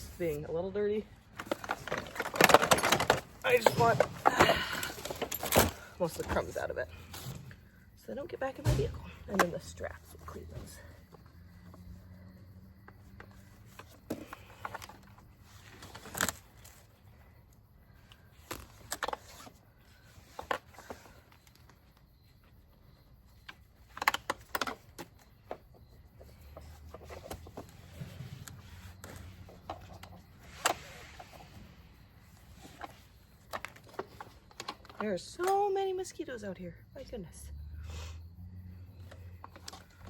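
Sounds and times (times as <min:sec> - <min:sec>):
harness buckles clicking and clinking: 0:01.4 - 0:06.6.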